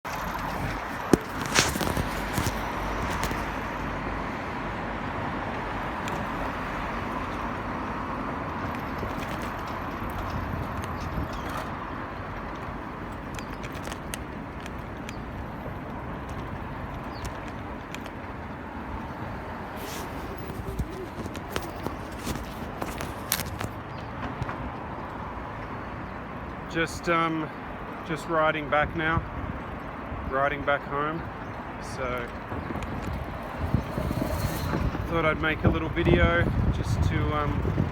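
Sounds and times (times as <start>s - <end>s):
bicycle tyres rolling on road: 0.1s - 28.0s, 29.1s - 37.9s
wind on microphone: 16.5s - 23.8s, 32.4s - 37.9s.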